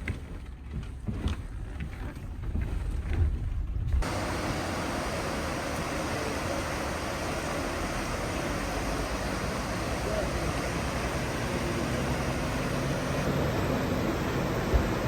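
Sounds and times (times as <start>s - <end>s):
rushing background noise: 4.0s - 15.0s
vehicle engine humming: 4.0s - 15.0s.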